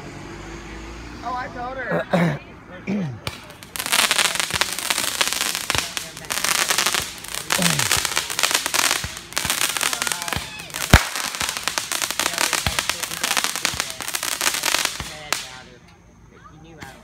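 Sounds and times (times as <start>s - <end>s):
firework loud bang: 3.2s - 15.7s
fireworks crackling: 3.2s - 15.8s.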